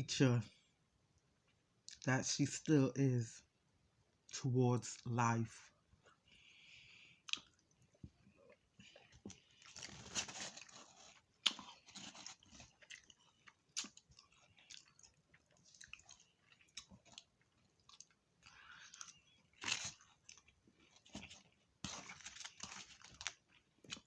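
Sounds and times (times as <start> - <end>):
person chewing food: 6.0 - 24.0
crunching food: 7.2 - 24.0.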